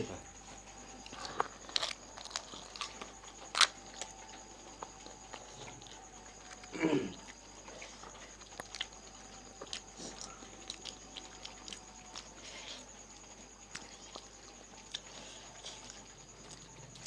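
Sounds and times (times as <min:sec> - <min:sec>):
crisp shells crunching: 0:01.3 - 0:03.8.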